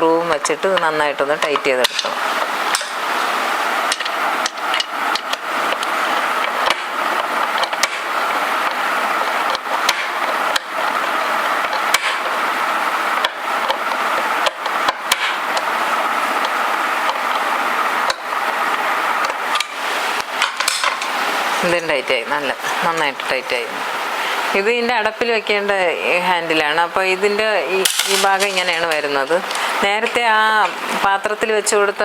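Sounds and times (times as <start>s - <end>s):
steady rushing background noise: 0.8s - 24.7s.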